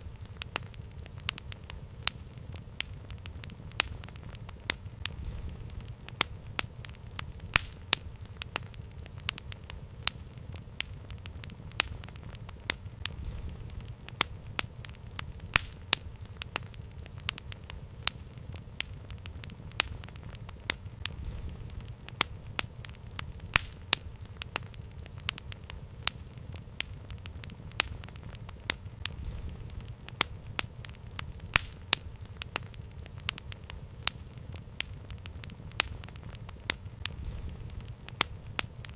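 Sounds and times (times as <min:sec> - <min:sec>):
campfire crackling and popping: 0:00.0 - 0:38.9.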